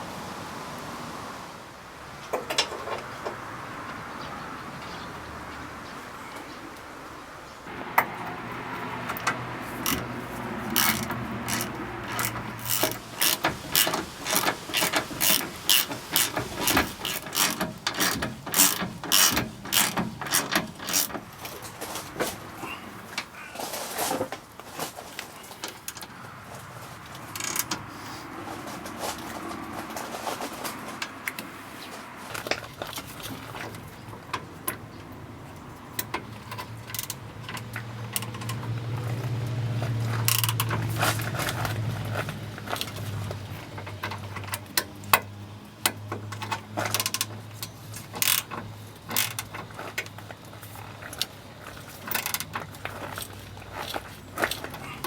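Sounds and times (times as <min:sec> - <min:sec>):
sharp mechanical clicks: 0:09.0 - 0:21.5.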